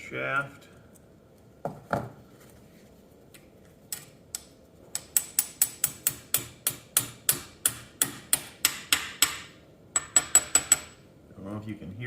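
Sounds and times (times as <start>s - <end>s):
hammer tapping metal: 4.4s - 11.0s.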